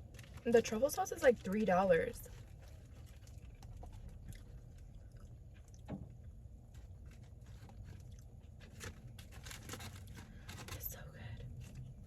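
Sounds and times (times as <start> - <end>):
low room hum: 0.0 - 12.0
person chewing food: 2.3 - 10.7.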